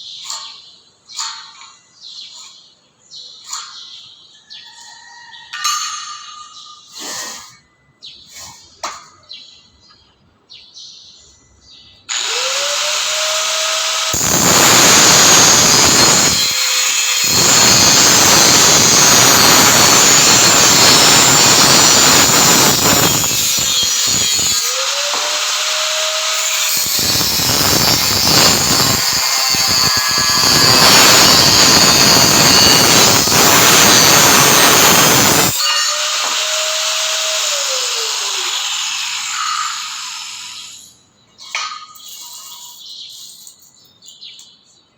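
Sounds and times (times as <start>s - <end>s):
angle grinder cutting steel: 12.1s - 40.9s.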